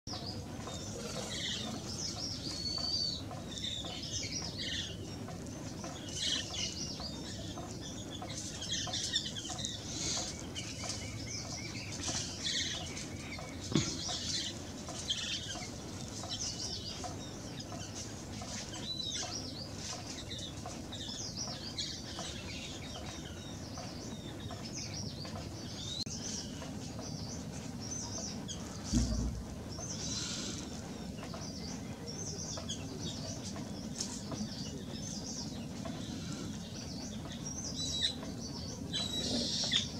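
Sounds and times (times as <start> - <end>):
birds chirping and whistling: 0.1 - 39.9
low steady rumble: 28.8 - 31.0
thump: 28.9 - 29.6.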